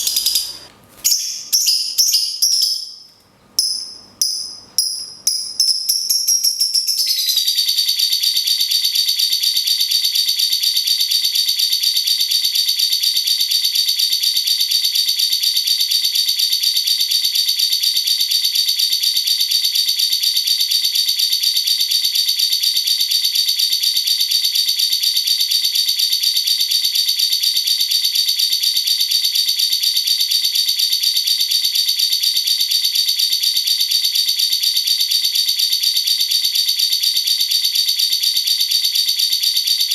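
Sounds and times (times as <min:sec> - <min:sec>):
bird rapid trill: 0:00.0 - 0:03.0, 0:03.6 - 0:07.9.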